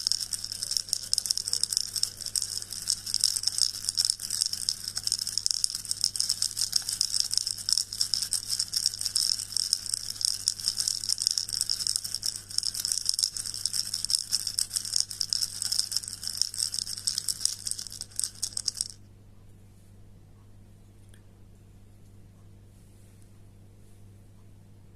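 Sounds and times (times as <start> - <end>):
dense rustling with tiny crackles: 0.0 - 19.0
faint low hum: 0.0 - 24.9.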